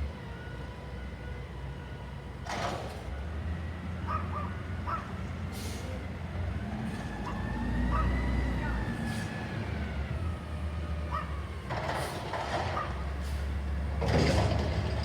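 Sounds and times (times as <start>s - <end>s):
garbage truck engine running: 11.5s - 15.0s.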